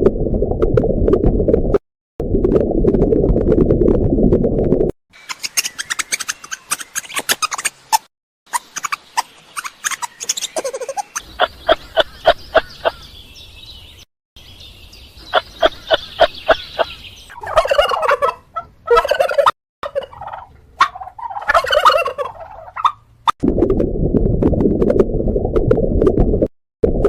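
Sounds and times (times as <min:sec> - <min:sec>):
fowl rattling calls: 0:05.2 - 0:13.0, 0:15.3 - 0:23.0
fowl squawking: 0:15.3 - 0:23.0.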